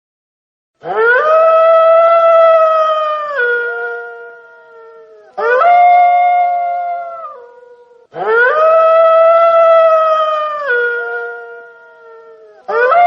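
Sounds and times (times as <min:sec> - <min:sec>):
wolf howling: 0:00.8 - 0:13.0.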